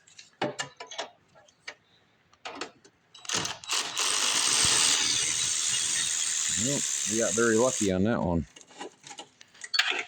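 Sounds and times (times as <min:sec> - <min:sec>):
power tool running: 0:03.3 - 0:07.9.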